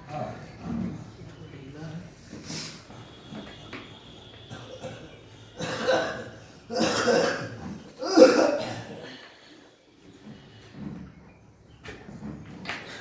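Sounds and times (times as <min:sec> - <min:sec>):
person coughing: 0:04.5 - 0:09.2.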